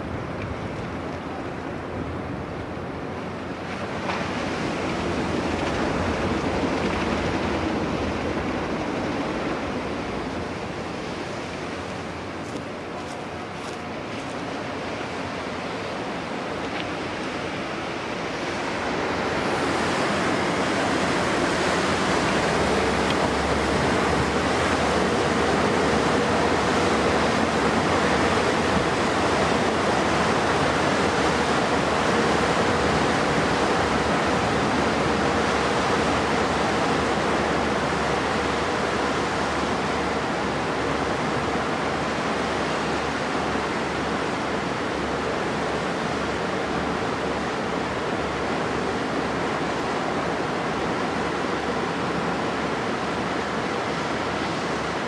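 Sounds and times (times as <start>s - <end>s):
low diesel engine hum: 0.0s - 55.0s
water rushing: 0.0s - 55.0s.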